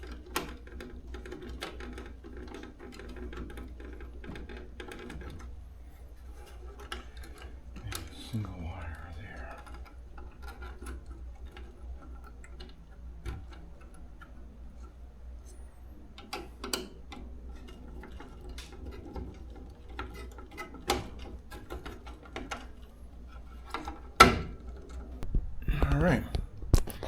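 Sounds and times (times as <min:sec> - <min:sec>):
steady low hum: 0:07.1 - 0:10.4.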